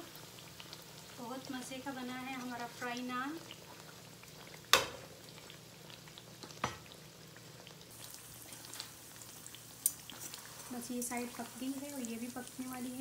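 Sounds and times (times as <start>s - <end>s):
oil sizzling: 0.0s - 13.0s.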